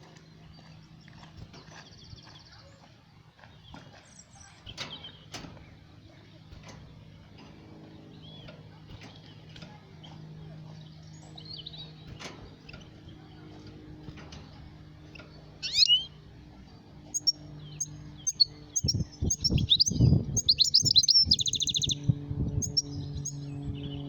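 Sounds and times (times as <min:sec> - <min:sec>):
steady low hum: 0:00.0 - 0:24.0
goldfinch chirping: 0:15.2 - 0:16.2, 0:17.1 - 0:23.9.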